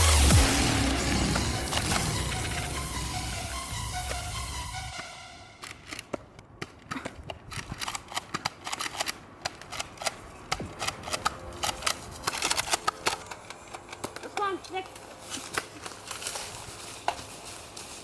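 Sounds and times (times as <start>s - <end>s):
background music: 0.0s - 6.1s, 10.4s - 18.0s.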